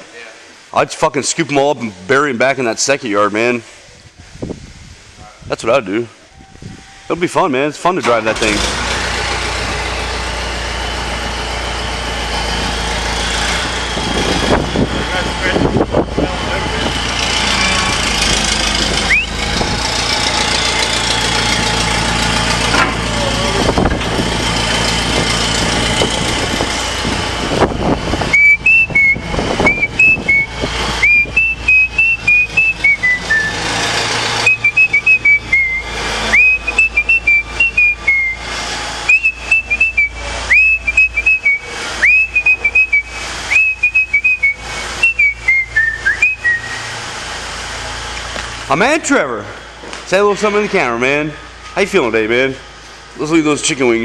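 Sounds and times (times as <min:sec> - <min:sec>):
engine-like rumble: 0:07.9 - 0:54.0
person whistling a tune: 0:19.1 - 0:19.4, 0:28.3 - 0:33.6, 0:34.4 - 0:38.5, 0:39.1 - 0:46.9.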